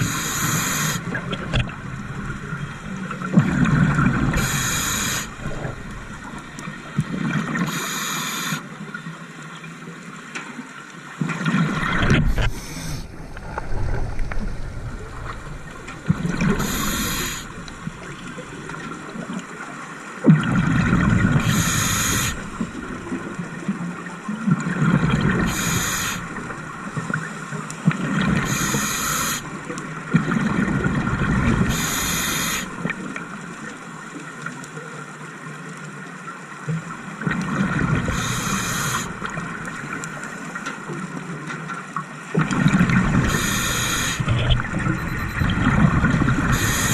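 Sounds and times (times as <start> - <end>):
regulator hiss on inhale: 0.0 - 1.1, 4.4 - 5.5, 7.7 - 8.7, 12.4 - 13.2, 16.5 - 17.6, 21.4 - 22.6, 25.5 - 26.3, 28.4 - 29.5, 31.7 - 32.8, 38.1 - 39.2, 43.2 - 44.3, 46.5 - 46.9
exhaled bubbles rushing: 11.5 - 19.4.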